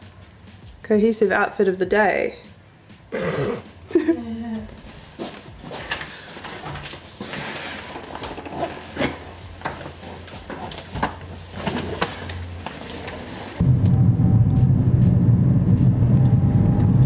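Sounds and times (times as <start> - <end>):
car driving rumble: 13.6 - 17.0
low steady hum: 13.6 - 17.0.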